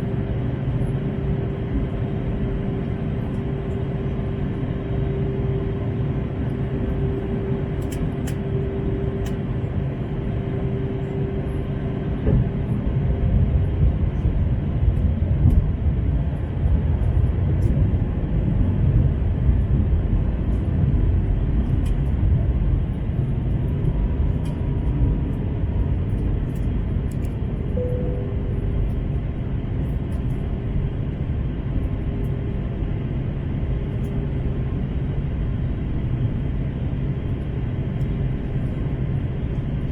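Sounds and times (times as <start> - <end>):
aircraft cabin engine rumble: 0.0 - 39.9
steady hum: 0.0 - 39.9.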